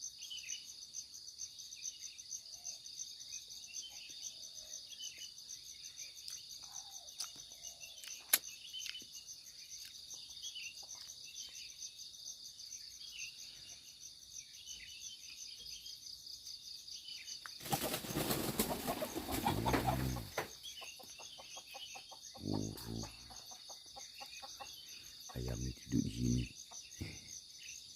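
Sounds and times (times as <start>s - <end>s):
insects chirring: 0.0s - 27.9s
chicken flapping wings: 17.6s - 20.5s
chicken squawk: 17.6s - 20.5s
chicken cluck: 17.6s - 27.2s.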